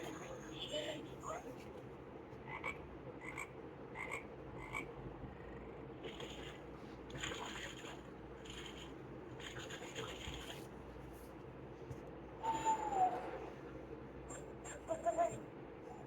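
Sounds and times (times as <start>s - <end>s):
recorded frog croaking from speaker: 2.5s - 5.6s.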